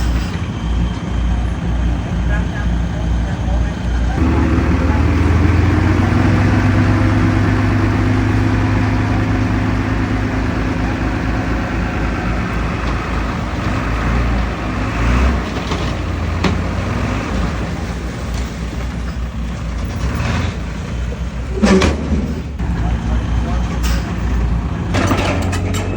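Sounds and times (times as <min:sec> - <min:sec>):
diesel machinery engine under load: 0:00.0 - 0:25.9
sharp metallic knocks: 0:23.8 - 0:25.9.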